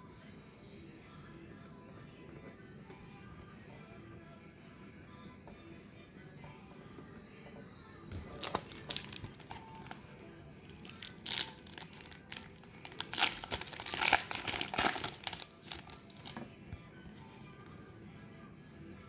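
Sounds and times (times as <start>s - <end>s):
foil wrapper crinkling and tearing: 8.2s - 10.1s, 10.7s - 16.4s.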